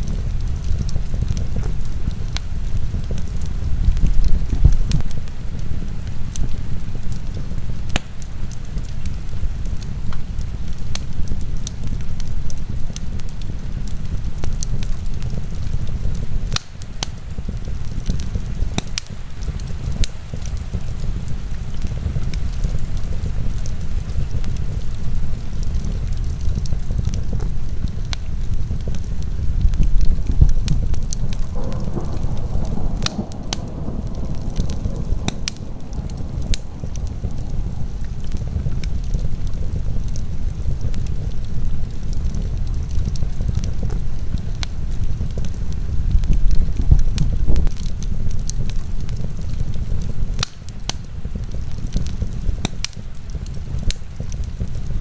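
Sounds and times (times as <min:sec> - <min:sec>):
heavy rain: 0:00.0 - 0:55.0
sharp fire pops: 0:00.0 - 0:55.0
wood fire crackling: 0:00.0 - 0:55.0.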